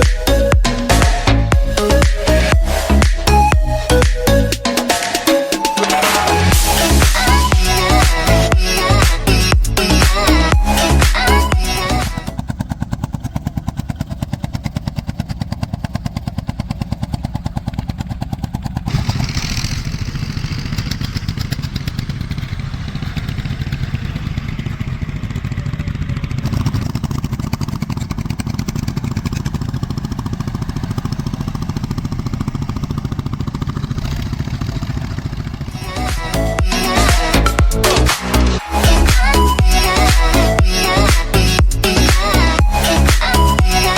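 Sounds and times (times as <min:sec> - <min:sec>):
tractor engine running: 0:06.1 - 0:43.9.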